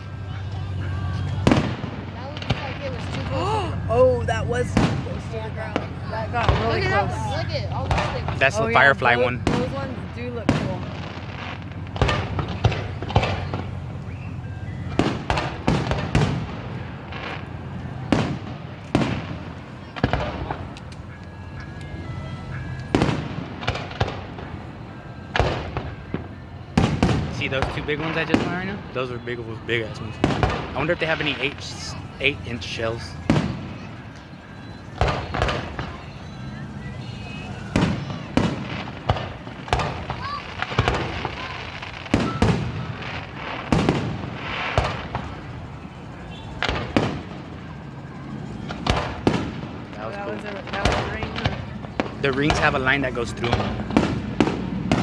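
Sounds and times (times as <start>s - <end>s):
firework shells bursting: 0.7s - 21.9s, 37.3s - 55.0s.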